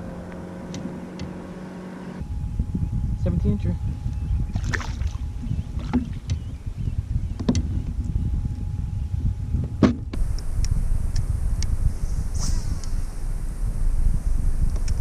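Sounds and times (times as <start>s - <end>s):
steady low rumble: 2.2s - 15.0s
knocks or splashes: 4.6s - 5.2s.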